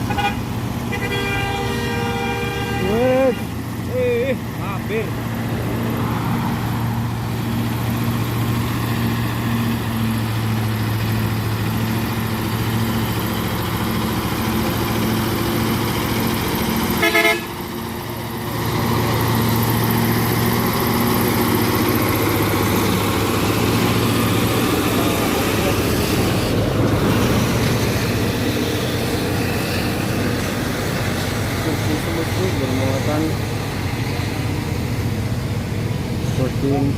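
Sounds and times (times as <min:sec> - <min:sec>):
vehicle horn toot: 0:00.0 - 0:03.5, 0:17.0 - 0:17.6
heavy truck engine climbing: 0:00.0 - 0:36.9.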